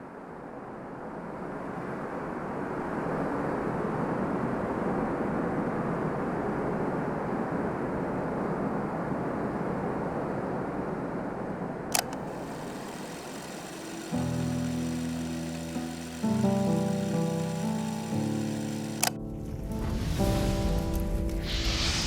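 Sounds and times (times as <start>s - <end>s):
sharp click: 11.9s - 19.2s.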